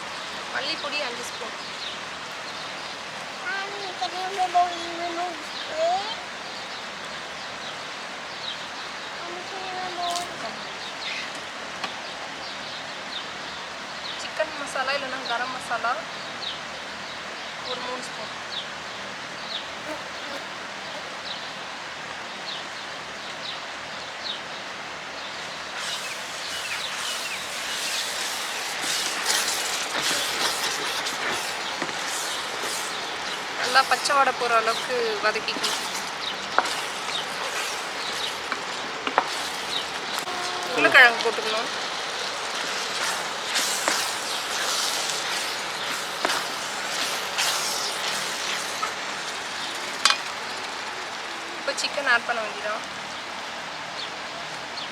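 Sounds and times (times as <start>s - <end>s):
spices sizzling in hot oil: 25.6s - 52.1s
high bird chirps: 25.8s - 50.6s.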